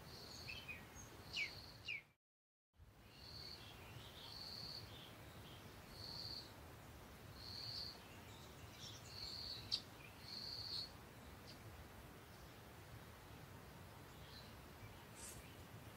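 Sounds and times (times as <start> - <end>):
soft bird chirps: 0.0 - 2.2, 7.4 - 15.8.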